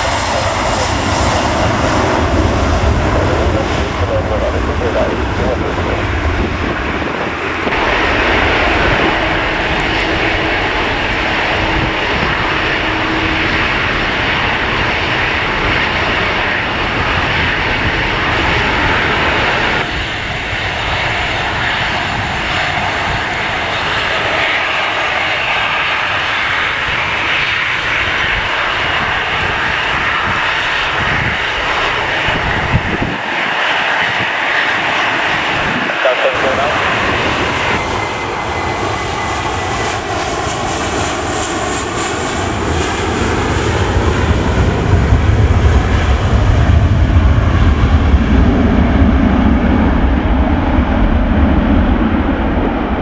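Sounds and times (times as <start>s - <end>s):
airliner engines running: 0.0s - 53.0s
wind rumbling on microphone: 0.0s - 53.0s.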